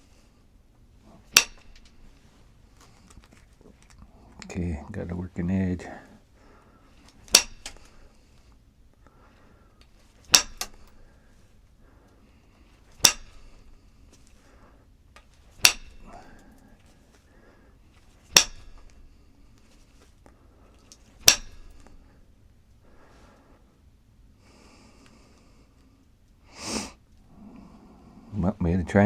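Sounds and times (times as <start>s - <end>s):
tool striking stone: 1.3s - 2.1s, 7.3s - 8.0s, 10.3s - 11.0s, 13.0s - 13.6s, 15.6s - 16.2s, 18.3s - 19.0s, 21.2s - 21.9s.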